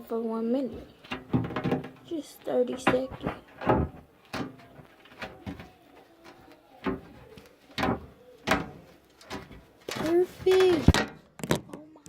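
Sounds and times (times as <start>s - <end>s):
knocks and clicks of handling: 1.0s - 12.0s.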